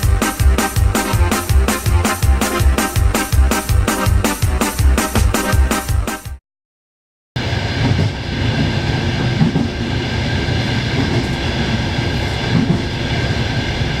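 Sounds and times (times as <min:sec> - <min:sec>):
train rumbling: 0:00.0 - 0:04.4, 0:07.4 - 0:14.0.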